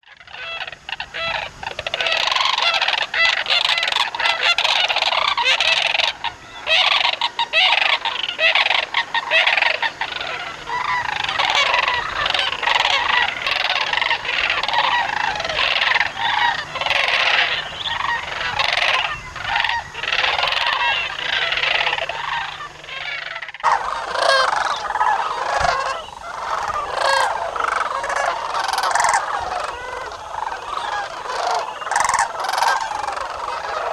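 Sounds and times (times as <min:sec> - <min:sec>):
flock of geese honking: 0:00.0 - 0:33.9.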